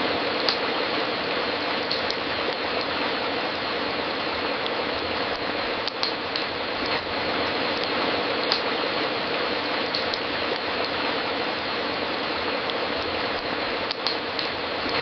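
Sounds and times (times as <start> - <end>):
wood fire crackling: 0.0 - 15.0
sharp pops of fire: 0.3 - 0.8, 1.4 - 3.1, 4.1 - 11.2, 12.4 - 15.0.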